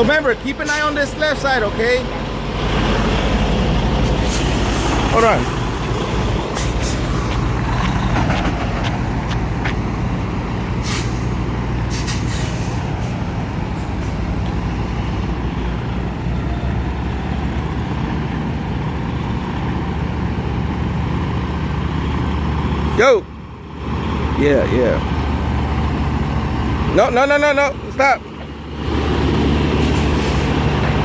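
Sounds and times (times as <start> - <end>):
diesel engine idling: 0.0 - 31.0
air brake hisses: 4.0 - 5.0, 10.8 - 13.2, 29.8 - 30.6.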